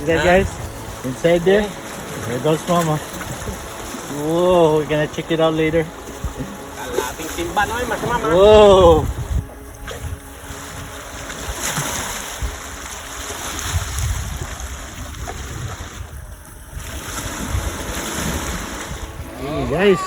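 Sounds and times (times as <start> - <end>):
wind rumbling on microphone: 0.0 - 1.1, 5.9 - 20.0
sea waves washing on beach: 0.0 - 20.0.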